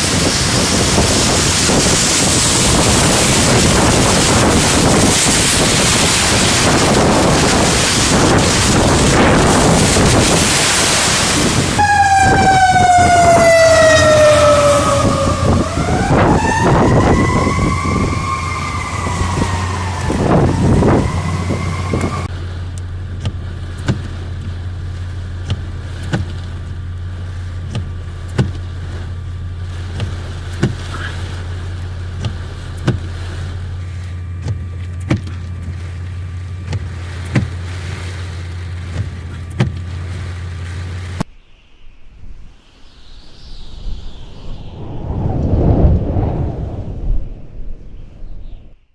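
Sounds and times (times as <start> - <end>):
emergency vehicle siren wailing: 1.7 - 22.3.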